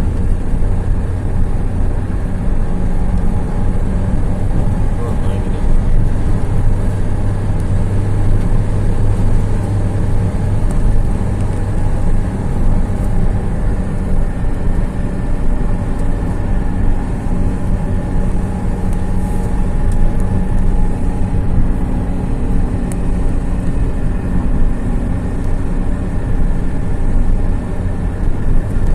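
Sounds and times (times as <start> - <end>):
road noise: 0.0 - 28.9
vehicle engine humming: 0.0 - 28.9.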